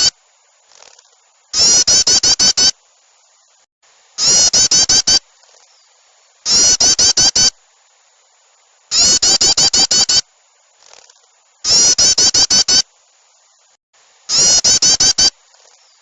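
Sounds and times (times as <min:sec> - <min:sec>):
agitated small bird calls: 0:00.0 - 0:02.8, 0:04.2 - 0:07.5, 0:08.9 - 0:10.2, 0:10.8 - 0:16.0.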